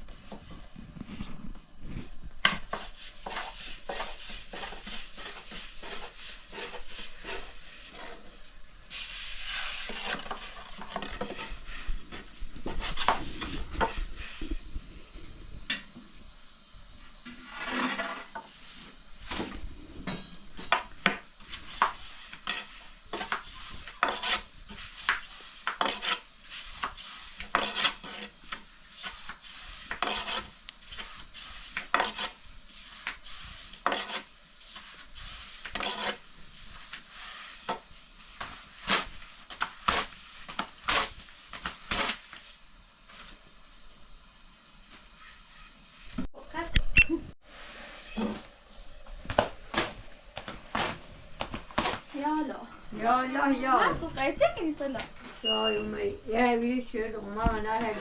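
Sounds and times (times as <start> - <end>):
utensils and pans knocking: 20.0 - 21.2.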